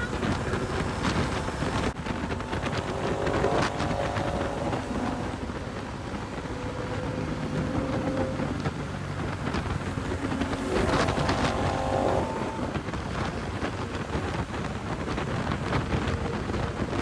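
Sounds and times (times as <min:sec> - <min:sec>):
motorcycle engine low rumble: 0:00.0 - 0:17.0
wind buffeting microphone: 0:00.0 - 0:17.0
brief high whine: 0:01.6 - 0:13.9.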